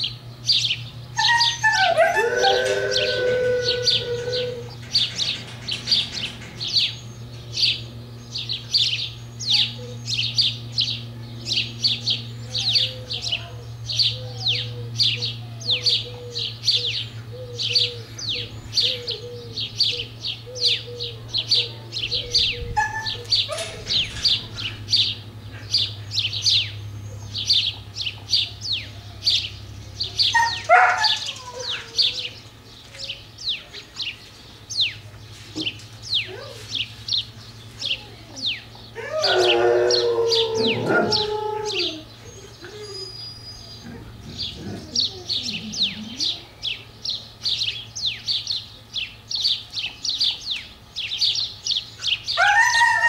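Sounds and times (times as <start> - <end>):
dog whining: 1.2 - 4.9, 21.6 - 24.0, 39.0 - 46.5
dogs whimpering: 1.2 - 6.9, 14.0 - 25.9, 30.2 - 33.2, 37.9 - 46.6
small bird chirping: 3.8 - 39.4, 40.4 - 52.4.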